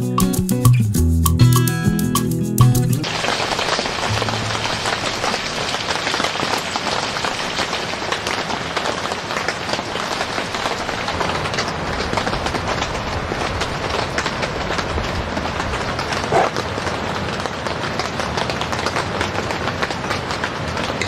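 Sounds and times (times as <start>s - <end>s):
music: 0.0s - 3.1s, 4.1s - 5.4s
steady rain: 3.0s - 21.0s.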